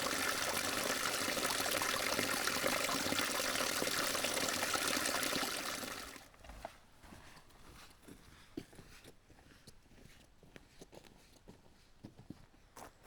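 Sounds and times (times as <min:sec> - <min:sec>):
stream water running: 0:00.0 - 0:06.4.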